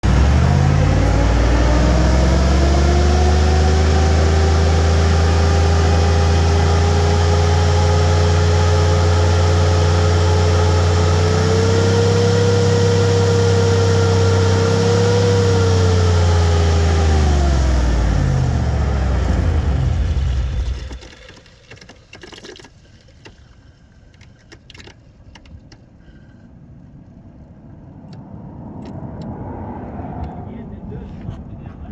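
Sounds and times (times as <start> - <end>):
whining tone: 0.0 - 21.1.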